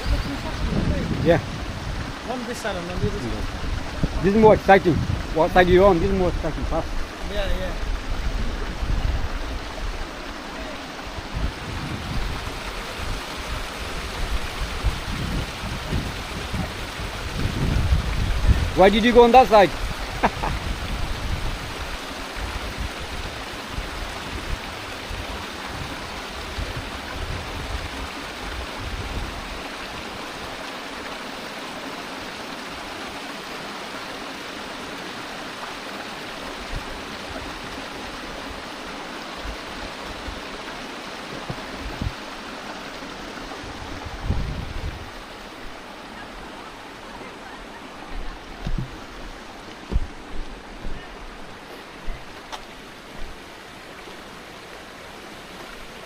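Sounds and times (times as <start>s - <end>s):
stream running over rocks: 0.0s - 56.0s
soft thumps: 48.6s - 51.1s.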